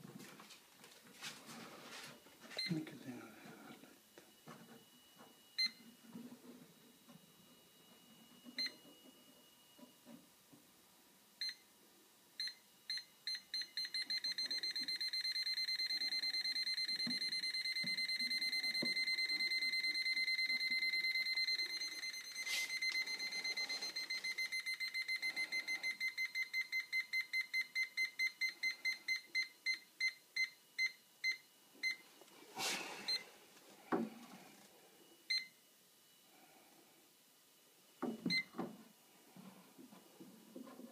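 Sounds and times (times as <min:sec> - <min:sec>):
leak detector beeping: 0:07.8 - 0:10.0, 0:12.4 - 0:32.0, 0:33.0 - 0:33.3, 0:35.3 - 0:35.6, 0:38.0 - 0:38.6.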